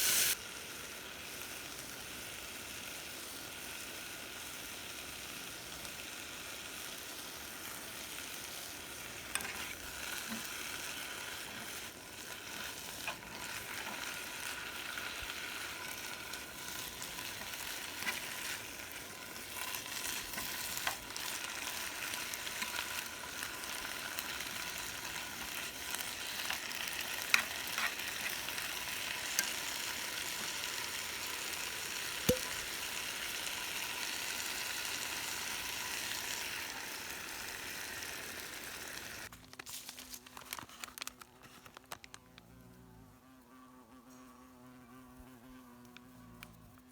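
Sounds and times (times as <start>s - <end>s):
food sizzling over campfire: 0.0s - 41.6s
fire cracking and popping: 11.4s - 30.5s.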